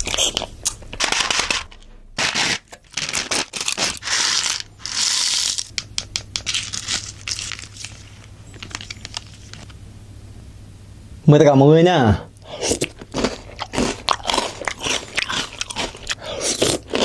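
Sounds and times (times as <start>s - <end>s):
packaging crinkling and crackling: 0.0s - 5.7s, 6.4s - 9.7s
plastic packaging tearing: 0.0s - 5.7s, 6.5s - 9.6s.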